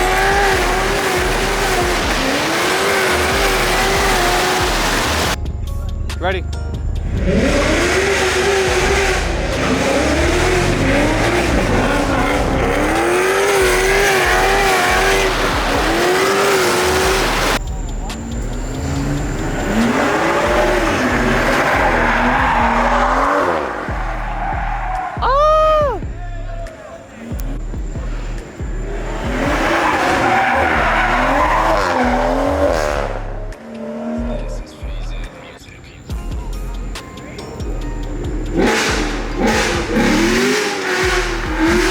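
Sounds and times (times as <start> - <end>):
car engine at high revs: 0.0 - 5.4, 6.8 - 25.2, 27.2 - 35.3, 37.5 - 41.9
tyres squealing on pavement: 9.5 - 32.8.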